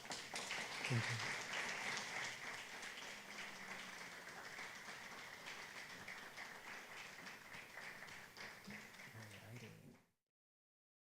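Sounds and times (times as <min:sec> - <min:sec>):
audience applause: 0:00.0 - 0:09.8.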